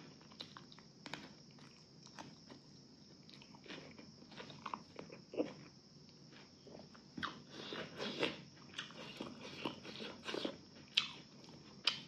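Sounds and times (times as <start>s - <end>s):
chewing with wet smacks: 0.2s - 5.6s, 8.2s - 12.0s.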